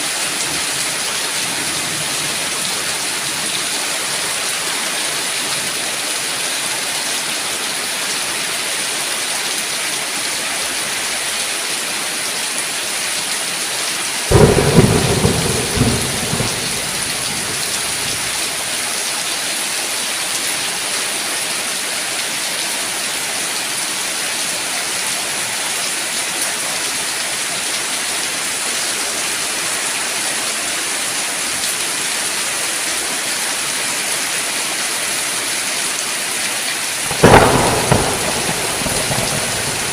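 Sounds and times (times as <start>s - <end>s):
heavy rain: 0.0s - 39.9s
thunderclap rumbling: 14.3s - 18.6s, 37.1s - 39.9s.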